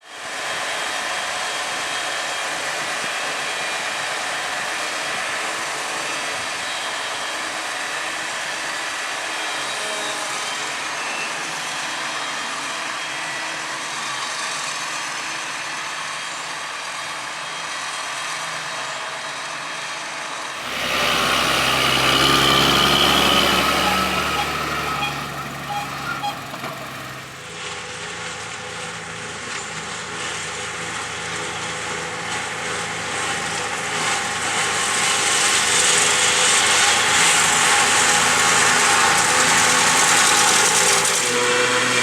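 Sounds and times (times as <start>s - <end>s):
harvesting machinery hiss and hum: 20.6s - 27.4s.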